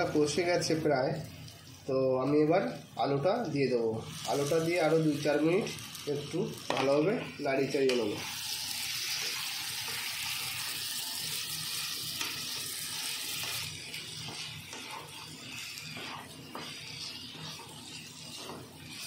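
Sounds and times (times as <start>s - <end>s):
potatoes sizzling in oil: 0.0s - 19.0s
wooden spatula scraping pan: 12.2s - 19.0s.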